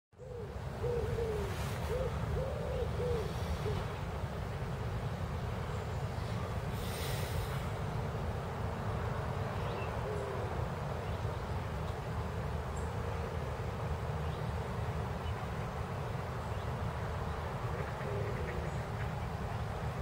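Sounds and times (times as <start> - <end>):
bird calls: 0.2 - 4.0, 16.5 - 19.7.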